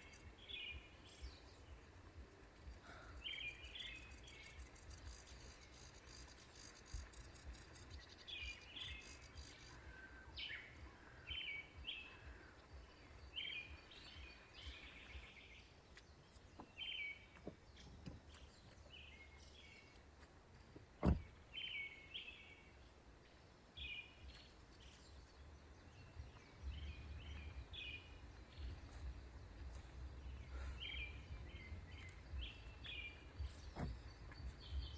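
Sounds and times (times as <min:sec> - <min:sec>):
small birds chirping: 0:00.0 - 0:34.9
low rumble: 0:25.1 - 0:34.9.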